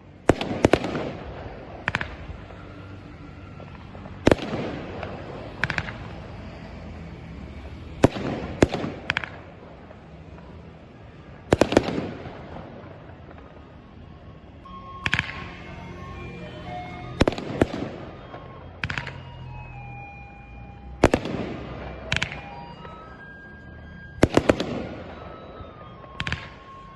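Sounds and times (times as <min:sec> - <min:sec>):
fireworks bursting in sharp bangs: 0:00.2 - 0:02.6, 0:04.0 - 0:06.1, 0:08.0 - 0:10.0, 0:11.4 - 0:13.8, 0:16.7 - 0:19.3, 0:21.0 - 0:23.2, 0:24.2 - 0:26.9
music: 0:14.6 - 0:26.9.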